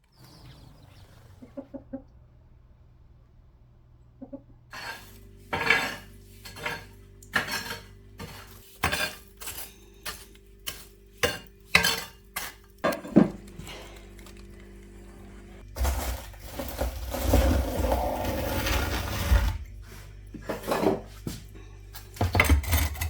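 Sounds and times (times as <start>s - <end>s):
faint steady hum: 0.0s - 23.0s
dishes and cutlery clattering: 4.8s - 13.4s, 22.2s - 23.0s.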